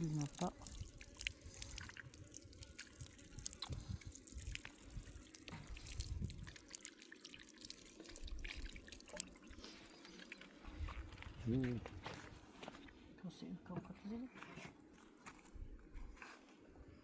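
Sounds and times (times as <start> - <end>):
small ticks and splashes: 0.0 - 11.5
water dripping and trickling: 0.0 - 11.8.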